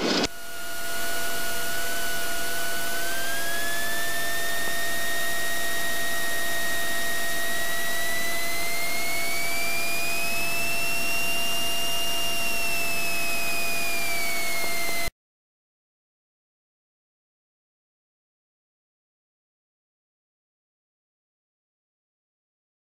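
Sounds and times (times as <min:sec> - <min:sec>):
high whistling tone: 0:00.6 - 0:15.1.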